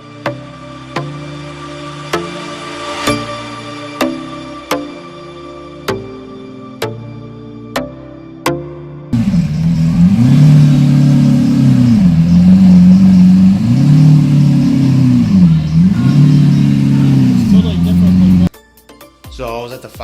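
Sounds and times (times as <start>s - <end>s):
car engine revving: 9.2s - 18.5s.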